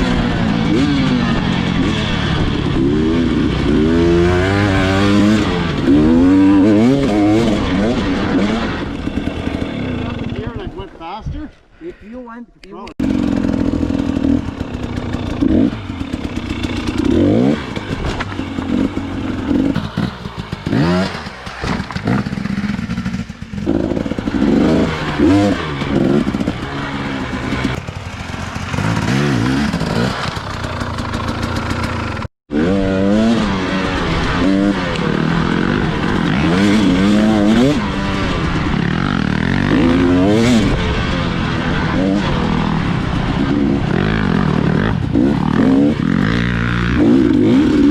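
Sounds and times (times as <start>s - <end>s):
dirt bike engine revving: 0.0s - 11.2s, 13.0s - 47.9s
bike knocks and rattles: 14.8s - 26.8s.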